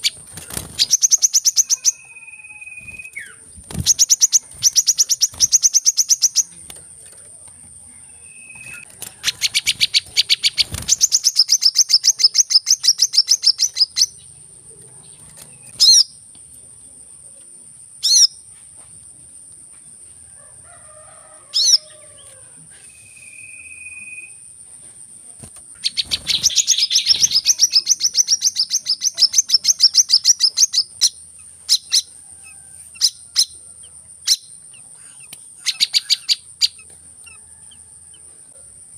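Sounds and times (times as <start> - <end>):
bird trilling and chirping: 0.0 - 7.2, 7.8 - 16.2, 18.0 - 18.4, 21.5 - 22.4, 25.7 - 38.2.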